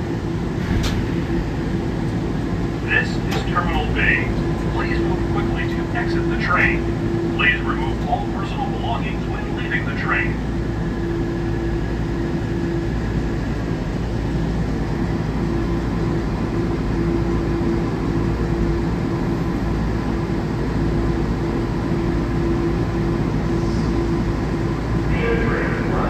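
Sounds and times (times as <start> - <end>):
low rumble: 0.3 - 7.0.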